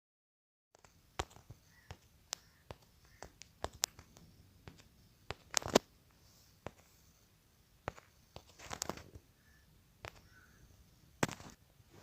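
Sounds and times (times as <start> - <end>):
small sharp clicks and taps: 0.8 - 5.9, 10.0 - 10.3.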